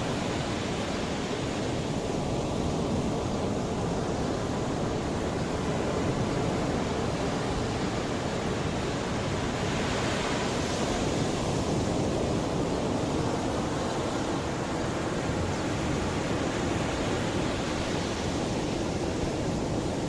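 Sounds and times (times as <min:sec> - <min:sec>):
sea waves washing in: 0:00.0 - 0:20.0.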